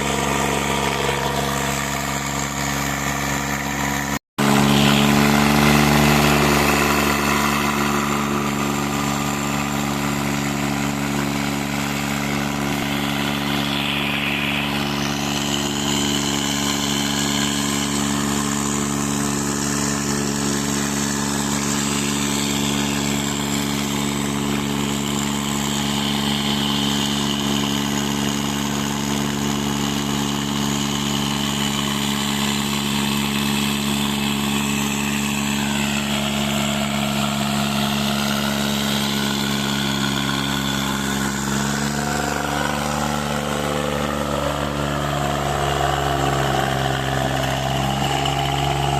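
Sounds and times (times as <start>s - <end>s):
diesel tractor engines running: 0.0s - 48.9s.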